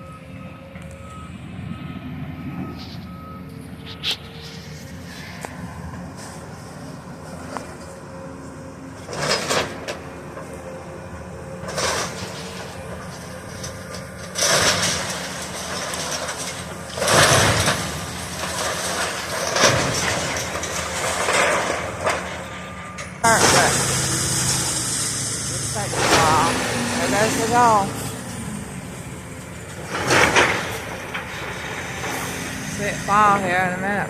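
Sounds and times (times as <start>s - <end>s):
excavator engine rumble: 0.0s - 34.0s
debris crunching and scraping: 11.6s - 34.0s.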